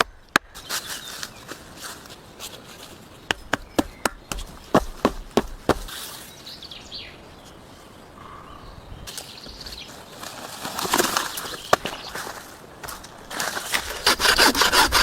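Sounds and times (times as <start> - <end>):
bird calls: 3.1 - 12.4
wood rustling and scraping: 9.1 - 15.0.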